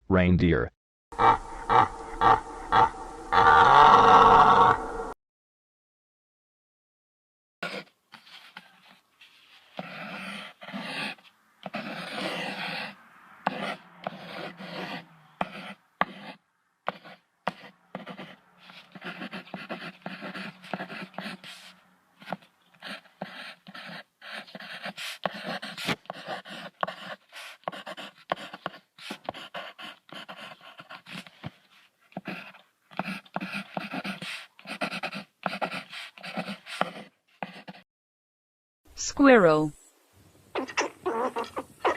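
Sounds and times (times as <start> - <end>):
animal calling with choppy sounds: 1.2 - 5.1, 40.5 - 41.9.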